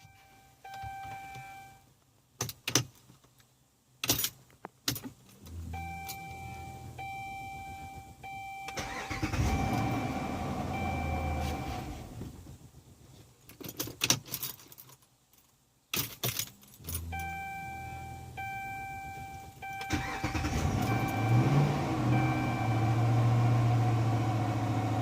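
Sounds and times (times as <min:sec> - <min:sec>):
dashboard chime: 0:05.8 - 0:08.8, 0:17.0 - 0:20.2
car engine dying out: 0:19.9 - 0:25.0
car engine revving: 0:19.9 - 0:25.0.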